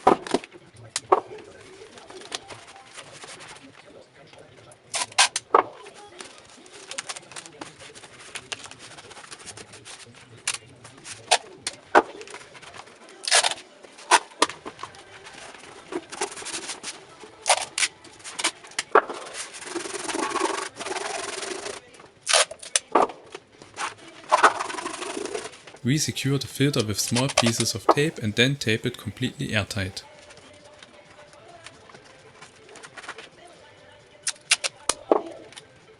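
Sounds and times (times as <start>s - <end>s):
tape rubbed onto cardboard box: 24.4s - 25.5s.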